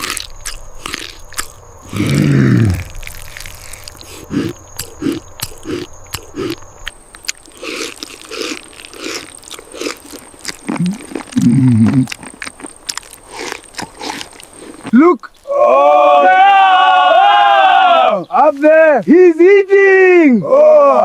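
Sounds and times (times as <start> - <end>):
chewing and crunching: 0.0 - 15.5
loud grunt: 1.9 - 3.0.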